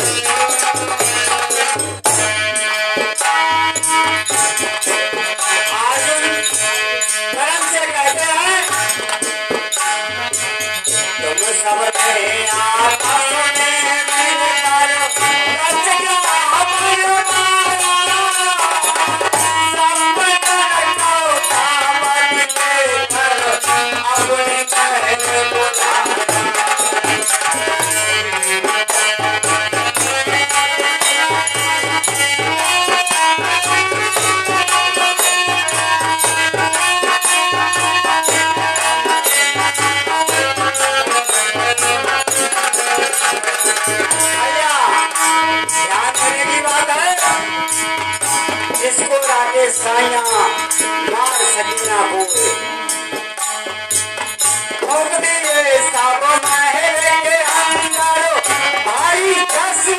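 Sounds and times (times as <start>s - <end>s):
jingling rattle percussion: 0.0s - 59.9s.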